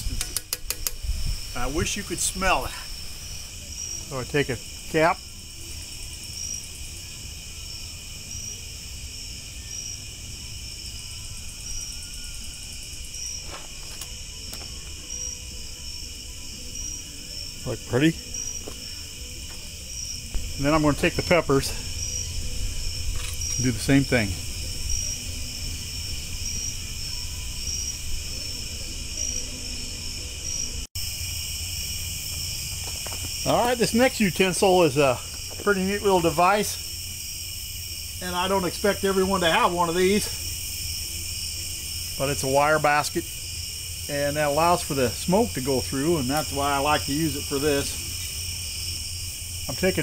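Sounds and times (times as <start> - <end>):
insects trilling: 0.0 - 50.0
pulsing cricket chirp: 0.0 - 50.0
low rumble: 20.2 - 27.0.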